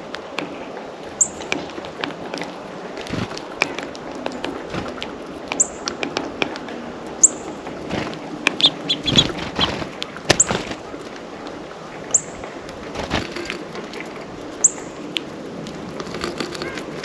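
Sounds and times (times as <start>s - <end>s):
songbirds calling: 0.0s - 17.0s.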